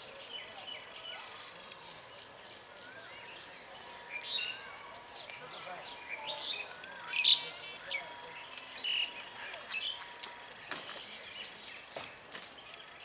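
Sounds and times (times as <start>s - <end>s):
faint background noise: 0.0s - 13.0s
small birds chirping: 0.0s - 13.0s.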